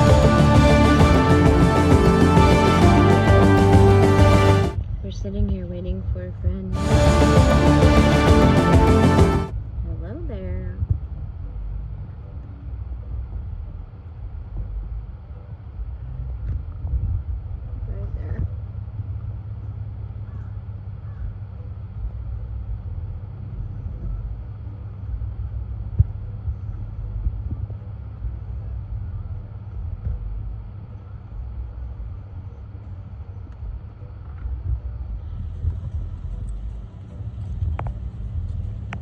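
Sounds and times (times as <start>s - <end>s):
car engine and road rumble: 6.8s - 39.0s.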